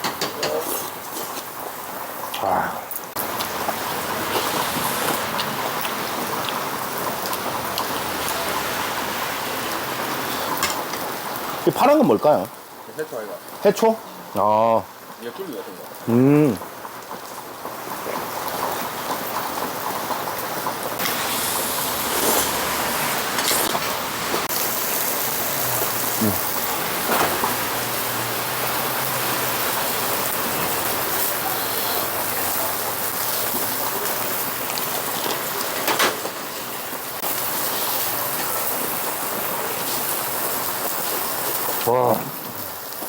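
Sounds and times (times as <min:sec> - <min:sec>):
tableware clicks and knocks: 0:00.0 - 0:00.6
pork sizzling on a grill: 0:00.0 - 0:43.0
rain hissing: 0:00.8 - 0:43.0.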